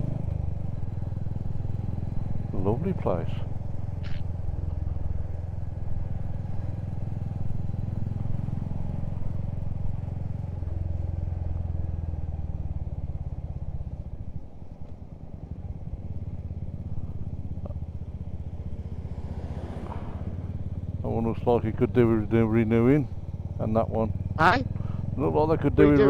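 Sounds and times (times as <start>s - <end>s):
motorcycle engine running: 0.0s - 26.0s
road and wind noise: 0.0s - 26.0s.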